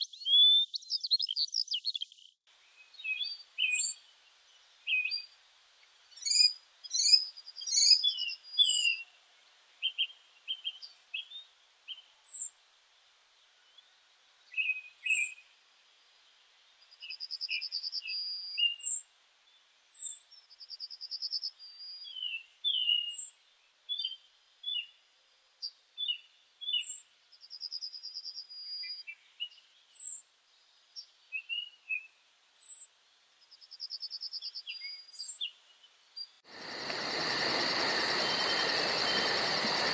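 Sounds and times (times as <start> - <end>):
bird chirps and whistles: 0.0 - 2.3, 2.9 - 4.0, 6.2 - 9.1, 14.6 - 15.4, 17.1 - 19.0, 21.8 - 23.3, 26.0 - 27.0.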